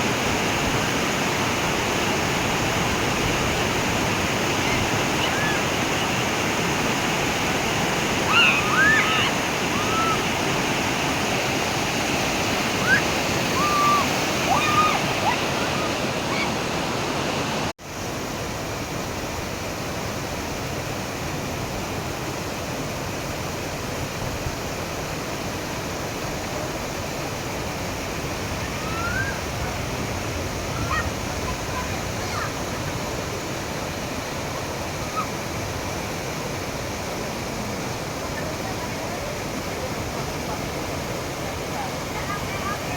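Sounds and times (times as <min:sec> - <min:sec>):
fast-flowing river water: 0:00.0 - 0:42.9
faint high-pitched calls: 0:08.2 - 0:10.3, 0:12.8 - 0:16.6, 0:28.6 - 0:29.5, 0:35.0 - 0:35.4.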